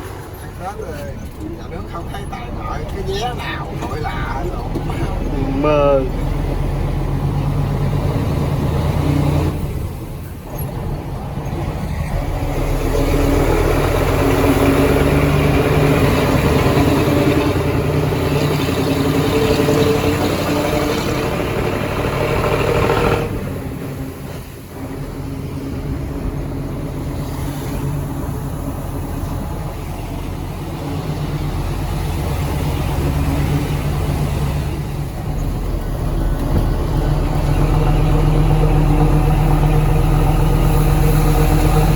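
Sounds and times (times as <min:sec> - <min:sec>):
truck engine with loud exhaust: 0:00.0 - 0:41.9.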